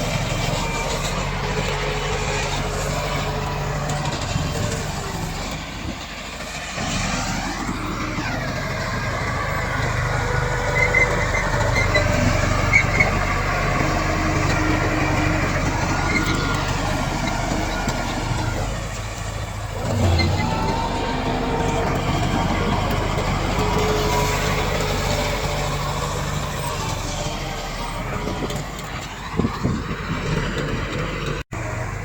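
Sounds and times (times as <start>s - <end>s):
bulldozer diesel engine: 0.0s - 32.0s
short squeaks: 10.2s - 18.6s.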